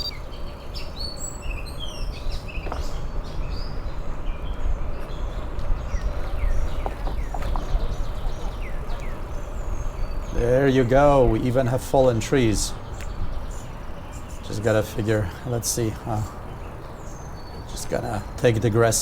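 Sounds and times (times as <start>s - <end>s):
wind rumble on microphone: 0.0s - 15.2s
small birds chirping: 0.0s - 19.0s.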